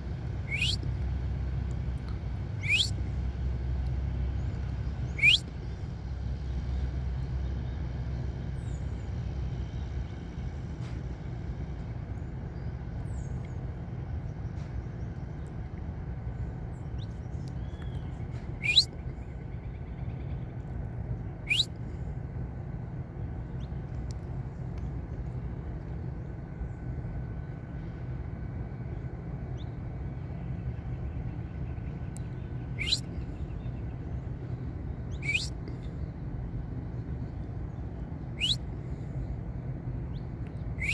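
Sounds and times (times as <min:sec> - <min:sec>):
steady low rumble: 0:00.0 - 0:40.9
faint short chirps: 0:00.5 - 0:00.8, 0:02.6 - 0:02.9, 0:05.1 - 0:05.4, 0:18.6 - 0:18.9, 0:21.5 - 0:21.7, 0:32.8 - 0:33.1, 0:35.1 - 0:35.6, 0:38.4 - 0:38.6
finch rising call notes: 0:00.5 - 0:00.8, 0:02.6 - 0:02.9, 0:05.2 - 0:05.4, 0:18.6 - 0:18.9, 0:21.5 - 0:21.7, 0:32.8 - 0:33.1, 0:35.2 - 0:35.5, 0:38.4 - 0:38.6.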